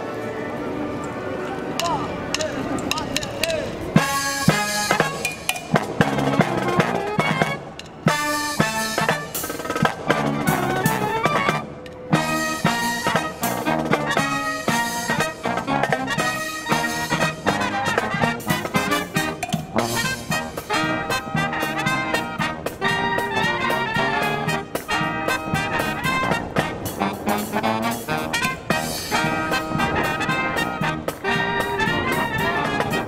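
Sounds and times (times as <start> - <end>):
brass marching band playing: 0.0 - 33.0.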